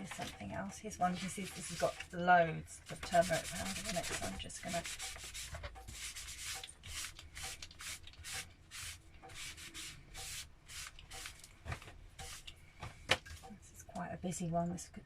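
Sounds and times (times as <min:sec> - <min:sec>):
pen scratching on paper: 0:03.1 - 0:05.2.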